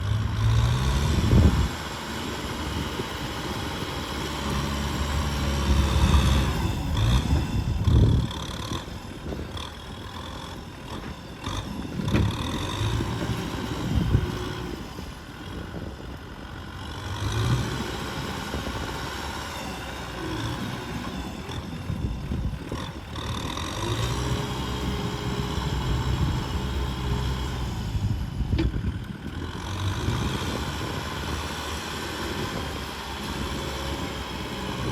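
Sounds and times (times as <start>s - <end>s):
tractor engine working under load: 0.0s - 34.9s.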